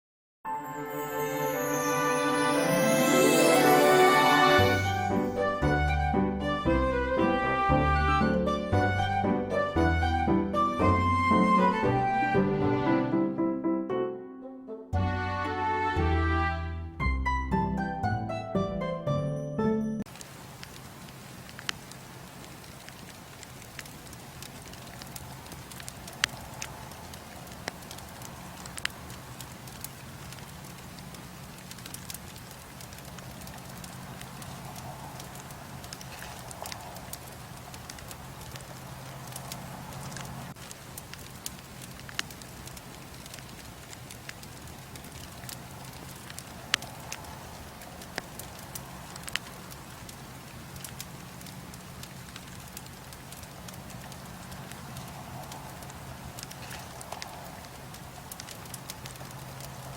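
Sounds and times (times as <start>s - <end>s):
bonfire crackling and popping: 0.6s - 12.9s, 20.0s - 59.9s
steady fire hiss: 20.1s - 59.9s.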